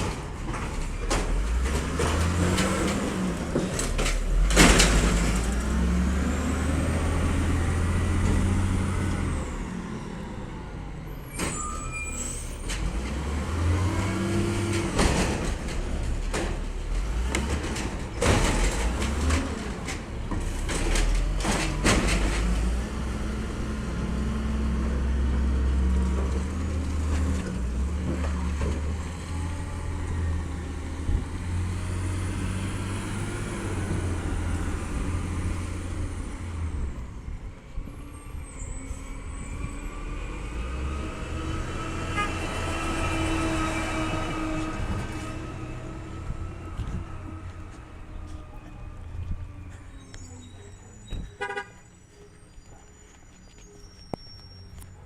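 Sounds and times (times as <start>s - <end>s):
garbage truck engine droning: 0.0s - 55.0s.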